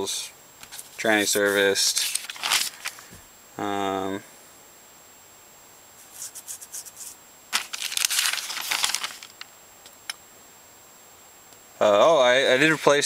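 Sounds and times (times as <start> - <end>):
paper pages rustling: 0.6 - 3.2, 6.0 - 9.4.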